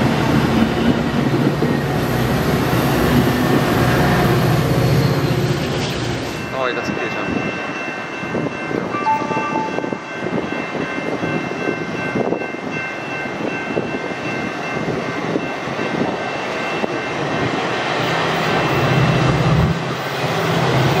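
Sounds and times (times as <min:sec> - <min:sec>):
street traffic: 0:00.0 - 0:11.1, 0:15.5 - 0:21.0
train rumbling: 0:00.0 - 0:21.0
faint high tones: 0:09.0 - 0:10.1
short beeps: 0:09.0 - 0:10.1.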